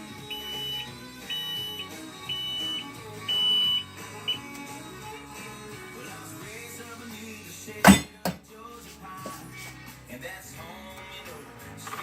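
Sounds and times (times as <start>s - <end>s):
background music: 0.0s - 12.0s
electronic beeper: 0.3s - 4.4s.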